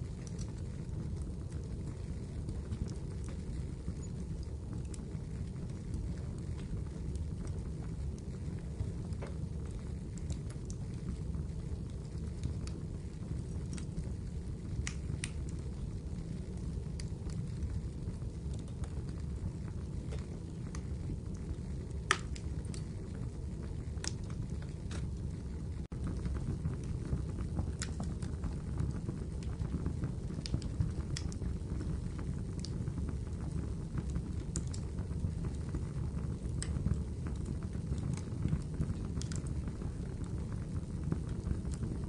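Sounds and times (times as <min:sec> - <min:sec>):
fireplace fire crackling and popping: 0:00.0 - 0:42.0.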